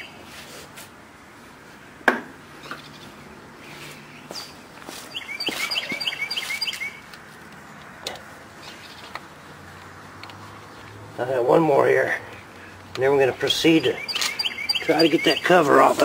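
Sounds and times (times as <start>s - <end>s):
songbird chirping: 2.6s - 11.0s, 12.2s - 16.0s.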